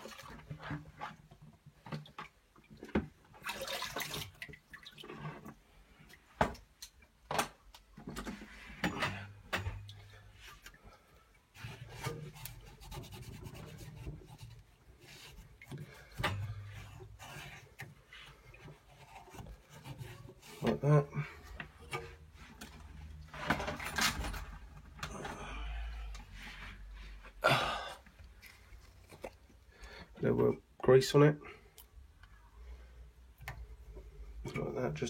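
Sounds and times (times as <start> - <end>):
cloth rubbing and wiping: 11.6 - 15.6.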